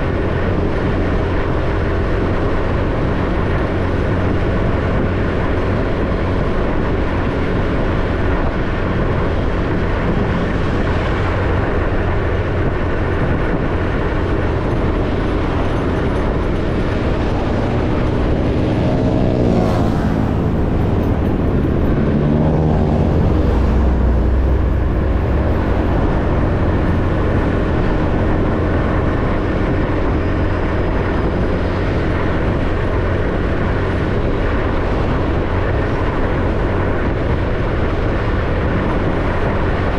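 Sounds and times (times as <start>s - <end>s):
motorbike engine hum: 0.0s - 39.9s
road and wind noise: 0.0s - 39.9s.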